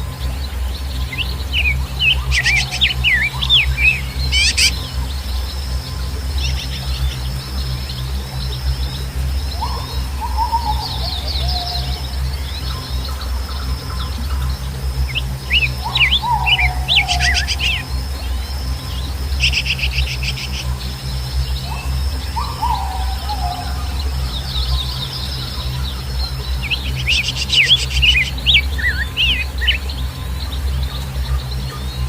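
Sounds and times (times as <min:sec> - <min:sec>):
birds chirping: 0:00.0 - 0:32.0
faint high whine: 0:00.0 - 0:32.0
steady low rumble: 0:00.0 - 0:32.0
rattling bird trills: 0:02.2 - 0:04.9.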